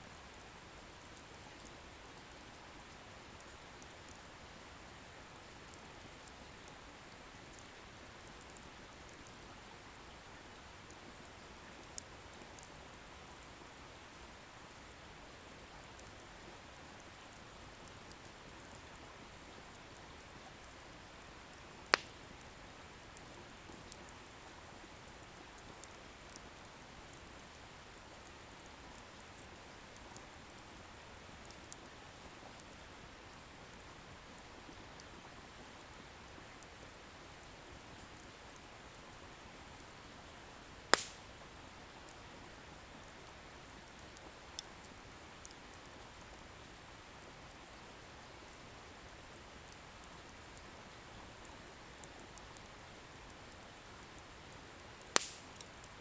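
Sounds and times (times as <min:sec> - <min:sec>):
bonfire hissing and crackling: 0:00.1 - 0:56.0
loud fire pop: 0:55.2 - 0:55.4.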